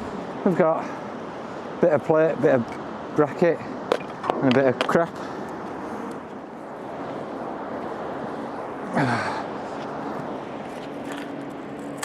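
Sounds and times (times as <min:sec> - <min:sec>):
person sighing: 0:08.9 - 0:09.4.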